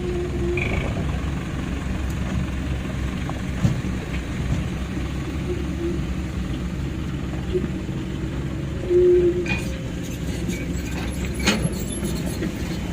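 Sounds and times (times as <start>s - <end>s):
high metal squeal: 0.0s - 1.0s, 8.8s - 12.9s
heavy diesel engine running: 0.0s - 12.9s.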